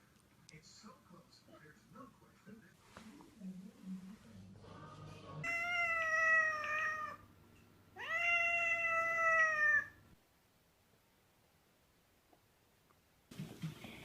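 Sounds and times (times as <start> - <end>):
cat meowing: 5.4 - 7.3, 8.0 - 10.0.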